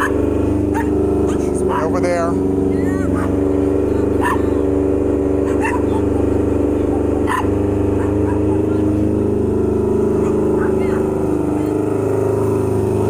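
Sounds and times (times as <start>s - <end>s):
dog barking: 0.0s - 2.1s, 3.0s - 3.4s, 4.1s - 4.6s, 5.4s - 8.9s, 10.2s - 10.7s
vehicle engine running: 0.0s - 13.0s.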